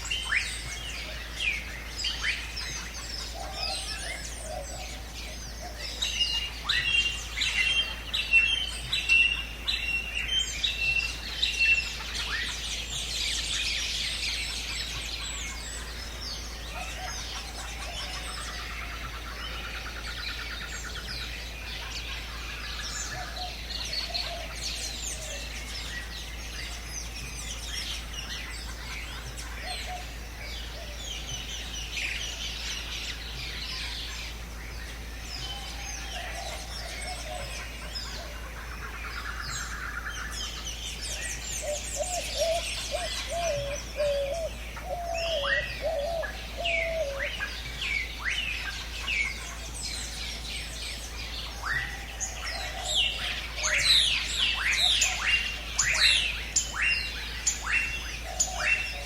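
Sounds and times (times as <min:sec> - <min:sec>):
birds calling and chirping: 0:00.0 - 0:59.0.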